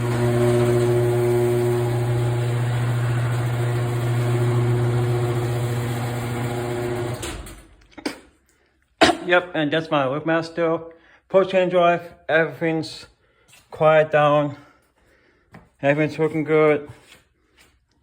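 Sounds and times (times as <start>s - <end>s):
garage door opener motor hum: 0.0s - 7.8s.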